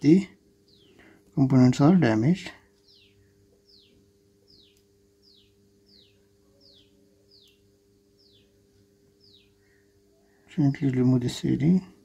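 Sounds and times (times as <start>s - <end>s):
low steady hum: 0.0s - 12.0s
bird chirping faintly: 2.7s - 10.8s.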